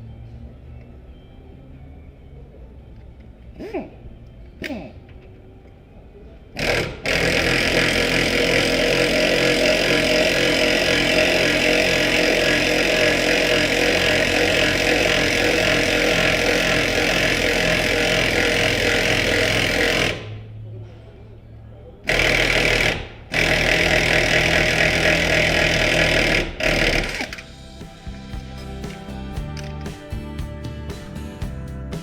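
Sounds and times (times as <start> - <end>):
impact wrench hammering: 6.6 - 20.4, 22.1 - 32.0.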